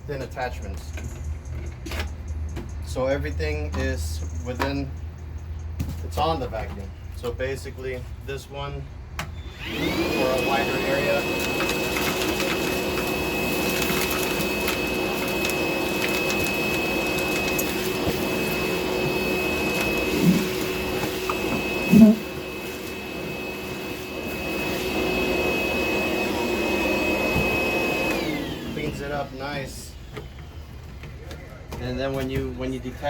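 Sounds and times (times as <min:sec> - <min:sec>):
wet-dry vacuum whining: 0:09.2 - 0:31.5.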